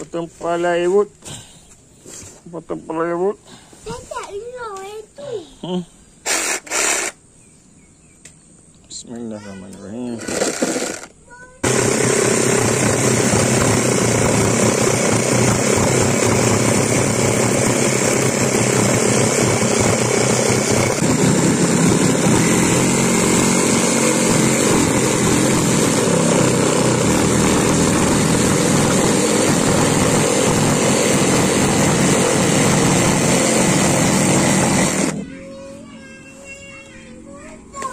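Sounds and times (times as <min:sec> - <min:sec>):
electric saw cutting timber: 0:06.3 - 0:07.2, 0:10.2 - 0:35.2.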